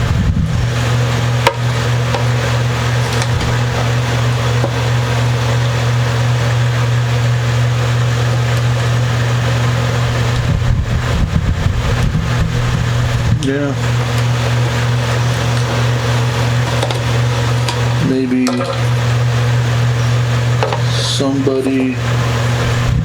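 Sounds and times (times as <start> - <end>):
loud background hum and hiss: 0.0 - 23.0.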